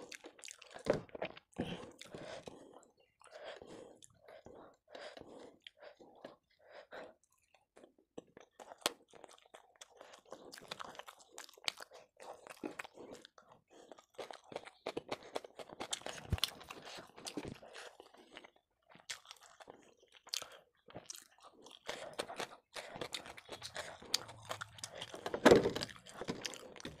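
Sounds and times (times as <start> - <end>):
wet chewing mouth sounds: 0.0 - 27.0.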